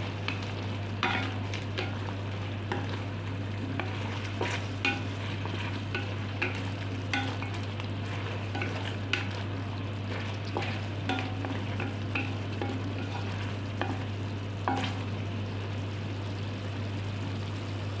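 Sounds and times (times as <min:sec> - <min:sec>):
chicken sizzling in a pan: 0:00.0 - 0:18.0
steady low hum: 0:00.0 - 0:18.0
utensil scraping a pan: 0:03.6 - 0:14.1.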